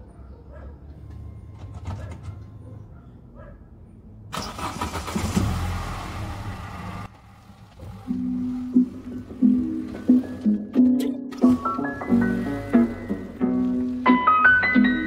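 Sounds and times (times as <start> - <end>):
car engine running low: 4.4 - 10.7.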